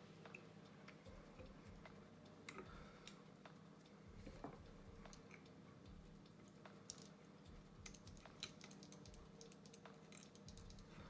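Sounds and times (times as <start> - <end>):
low steady hum: 0.0 - 11.0
small tool clicks and ticks: 6.2 - 11.0.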